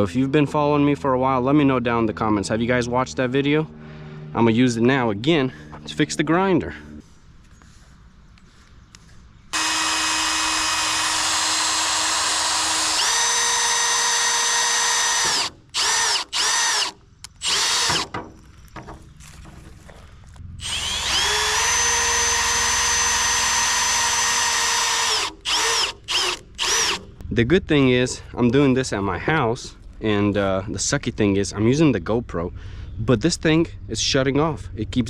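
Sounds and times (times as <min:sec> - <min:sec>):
power tool motor whining: 0:09.5 - 0:18.2, 0:20.6 - 0:27.2.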